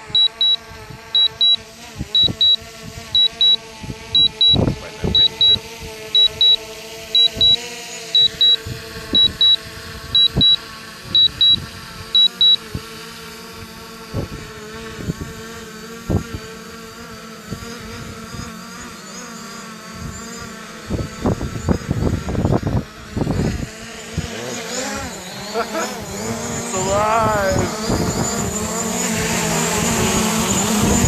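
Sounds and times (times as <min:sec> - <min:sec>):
drone propellers humming: 0:00.0 - 0:31.0
electronic double beeps: 0:00.1 - 0:00.6, 0:01.2 - 0:01.6, 0:02.2 - 0:02.6, 0:03.2 - 0:03.6, 0:04.2 - 0:05.6, 0:06.2 - 0:06.6, 0:07.2 - 0:07.6, 0:08.2 - 0:08.6, 0:09.2 - 0:09.6, 0:10.2 - 0:10.6, 0:11.2 - 0:11.6, 0:12.2 - 0:12.6.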